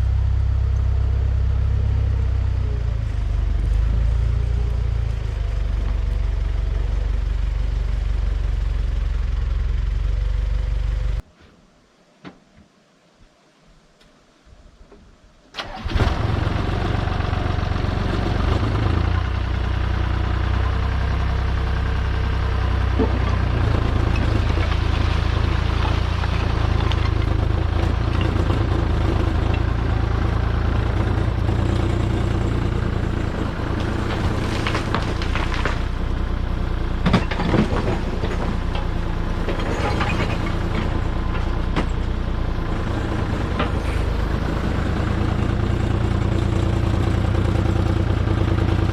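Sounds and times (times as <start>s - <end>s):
heavy machinery engine running: 15.6s - 48.9s.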